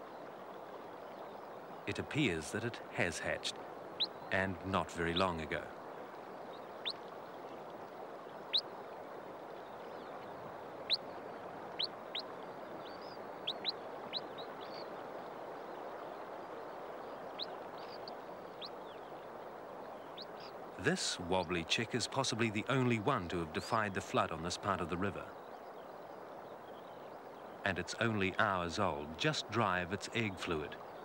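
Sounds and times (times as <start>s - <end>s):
steady hiss: 1.9s - 5.7s, 19.8s - 25.3s.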